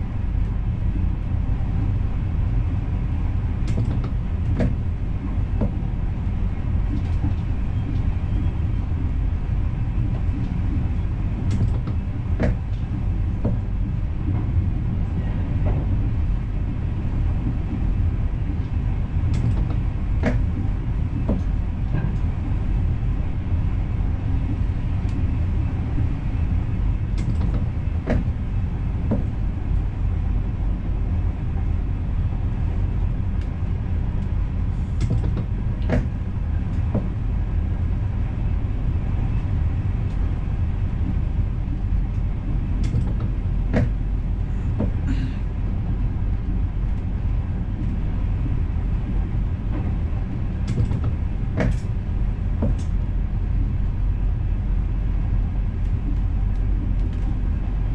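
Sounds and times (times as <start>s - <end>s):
train rumble in cab: 0.0s - 57.9s
sharp clicks and knocks: 3.6s - 5.8s, 10.0s - 14.6s, 19.3s - 22.6s, 27.2s - 28.4s, 29.0s - 29.4s, 35.0s - 37.2s, 42.1s - 44.0s, 49.7s - 53.0s.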